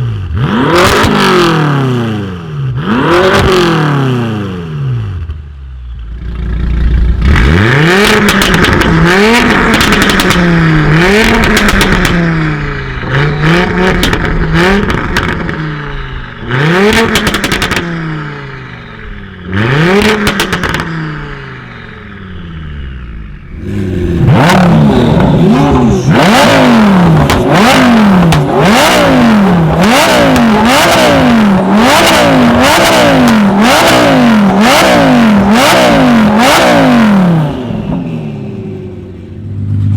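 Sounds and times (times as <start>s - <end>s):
car engine revving: 0.0s - 5.3s, 6.2s - 39.9s
exhaust pops and crackles: 7.2s - 15.6s, 16.8s - 18.0s, 20.0s - 21.0s, 27.1s - 29.0s.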